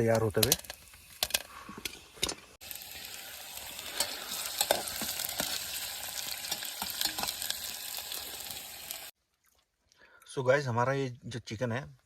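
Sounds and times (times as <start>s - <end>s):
food frying in hot oil: 2.2s - 9.2s.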